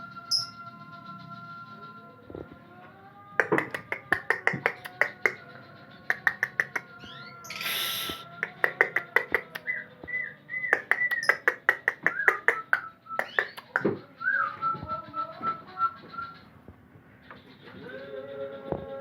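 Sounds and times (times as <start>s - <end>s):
bird singing: 0.0s - 19.0s
short hiss: 7.5s - 8.3s.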